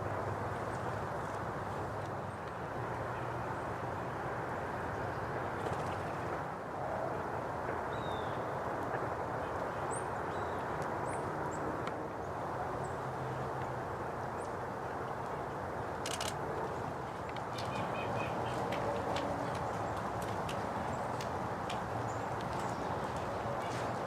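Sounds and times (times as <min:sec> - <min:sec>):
low background noise: 0:00.0 - 0:24.0
sharp clicks: 0:16.0 - 0:16.4.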